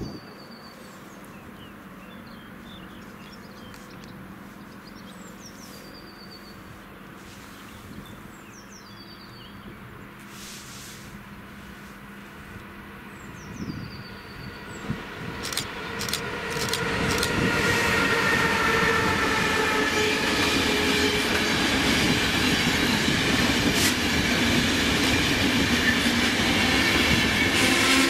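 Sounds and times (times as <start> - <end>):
songbird singing trill: 0.0 - 6.7, 7.6 - 9.9
brief hiss: 10.2 - 12.0
rushing background noise: 14.2 - 18.6.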